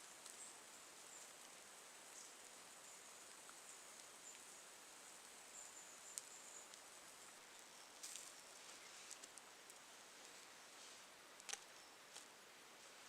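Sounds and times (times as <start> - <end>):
small ticks or rustles: 0.0 - 13.0.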